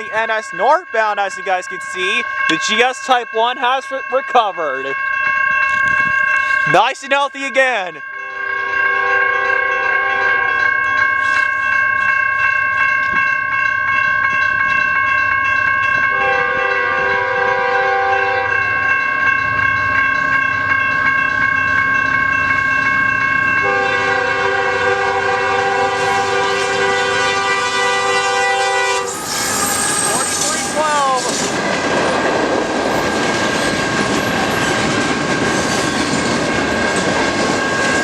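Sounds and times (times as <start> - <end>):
railroad crossing bell ringing: 0.0 - 32.3, 32.9 - 38.0
locomotive horn blasts: 8.1 - 10.7, 16.1 - 18.6, 23.6 - 31.2.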